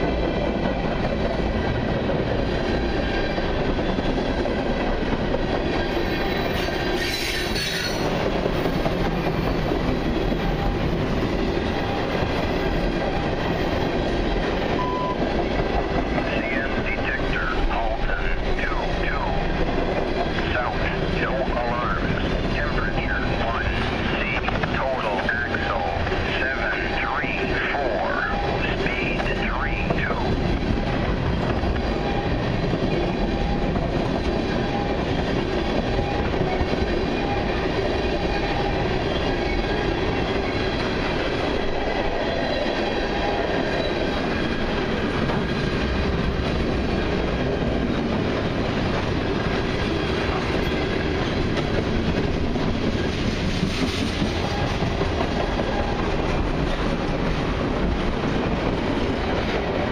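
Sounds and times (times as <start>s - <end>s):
freight train rumbling past: 0.0s - 59.9s
steel wheels clattering on rails: 0.0s - 59.9s.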